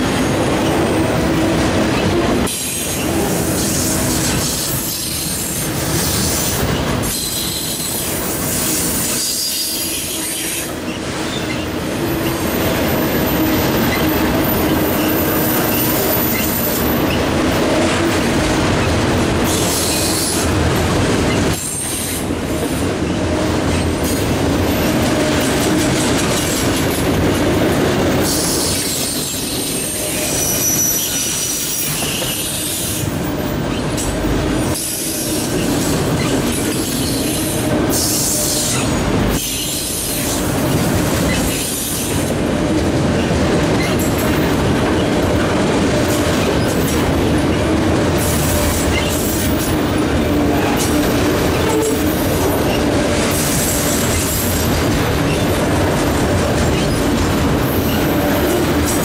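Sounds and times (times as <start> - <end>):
freight train wheels on rails: 0.0 - 59.0
wheel squeal: 6.4 - 17.2, 28.3 - 33.1, 34.8 - 40.3, 48.4 - 49.7, 50.7 - 55.6, 56.6 - 57.1.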